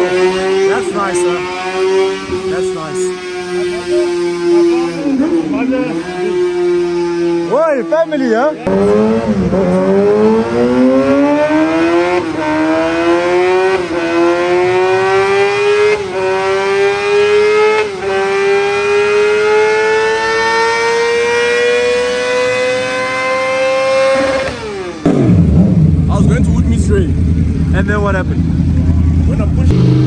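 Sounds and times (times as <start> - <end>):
motorcycle engine accelerating: 0.0 - 7.6, 8.6 - 30.0.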